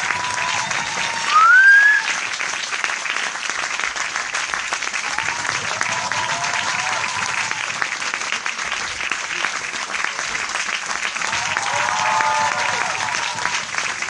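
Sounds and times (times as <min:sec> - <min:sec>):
crowd applauding: 0:00.0 - 0:14.0
loud rising whistle: 0:01.2 - 0:02.1.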